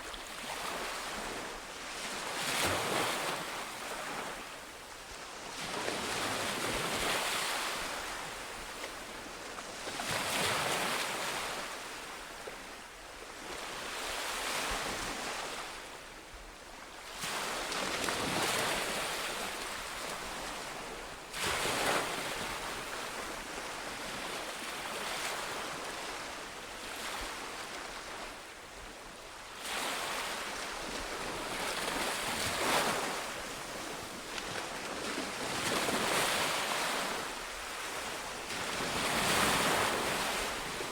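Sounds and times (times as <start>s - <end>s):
sea waves breaking on shore: 17.0s - 28.7s, 29.6s - 40.9s.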